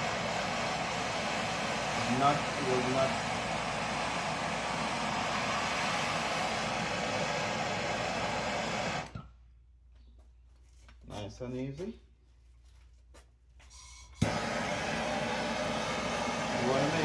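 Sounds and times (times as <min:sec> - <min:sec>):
soldering torch hissing roar: 0:00.0 - 0:09.1, 0:14.2 - 0:17.0.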